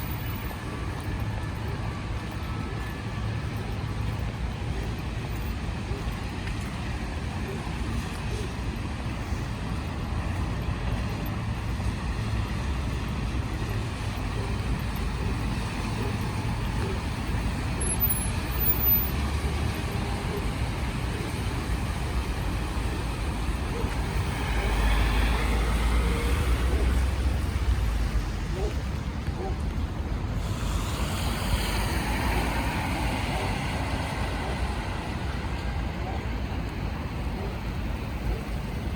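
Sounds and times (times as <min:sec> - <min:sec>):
cars passing on wet road: 0:00.0 - 0:38.9
heavy vehicle passing: 0:15.4 - 0:29.2, 0:30.1 - 0:38.9.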